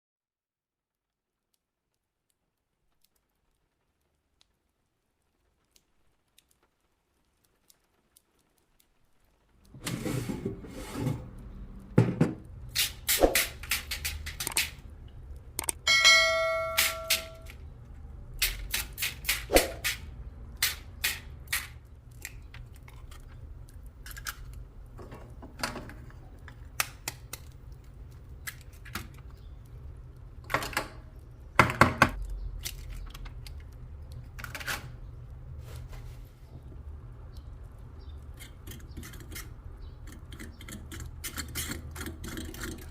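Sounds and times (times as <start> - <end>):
short metallic ringing tone: 15.9 - 17.4
utensils and dishes clattering: 15.9 - 17.5.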